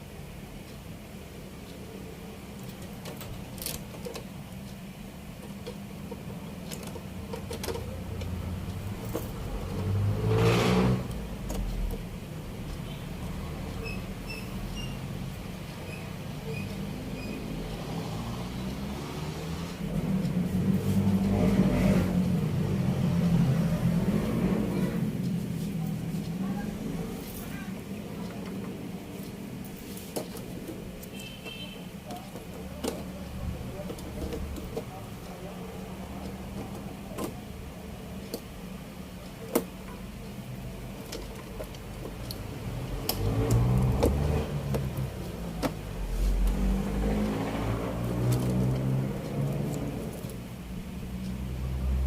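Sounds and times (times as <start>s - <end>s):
steady low hum: 0.0s - 52.0s
small clicks and taps: 39.3s - 50.6s.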